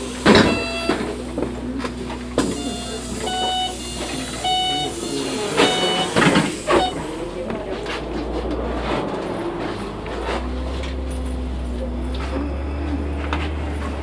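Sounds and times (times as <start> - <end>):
bus engine rumble: 0.0 - 14.0
electronic tone melody: 2.4 - 7.4.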